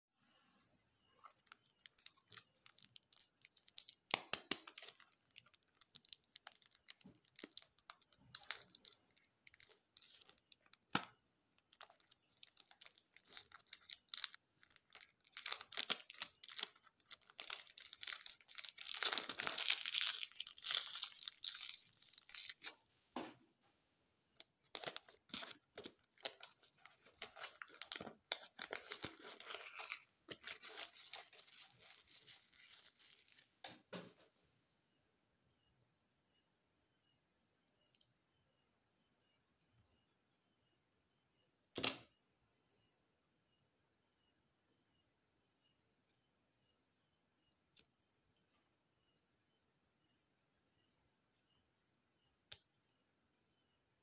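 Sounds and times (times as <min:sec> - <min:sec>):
candy wrappers tearing and crinkling: 0:01.3 - 0:22.8, 0:24.5 - 0:33.4.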